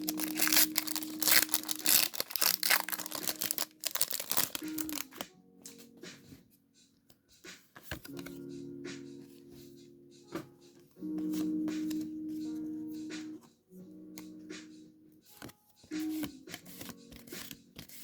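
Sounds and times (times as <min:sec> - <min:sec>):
foil wrapper crinkling and tearing: 0:00.0 - 0:05.2
soft background music: 0:00.0 - 0:18.0.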